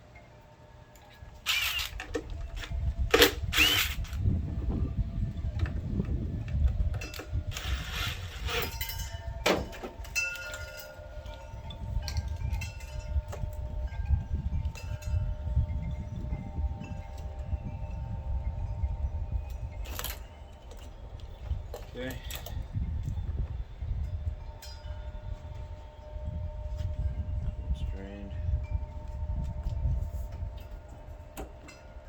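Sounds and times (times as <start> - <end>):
steady low rumble: 1.2 - 32.0
tools clanking and scraping: 7.0 - 11.3.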